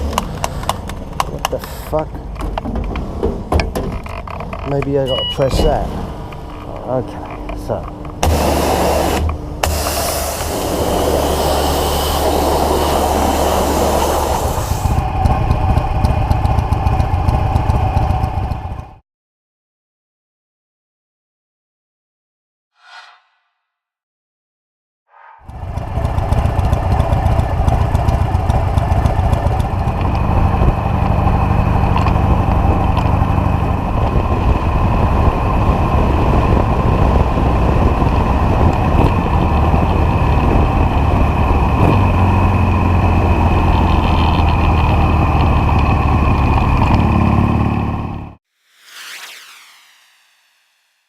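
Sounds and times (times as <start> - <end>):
faint whoosh: 22.8 - 23.7, 25.1 - 25.6, 48.5 - 51.0.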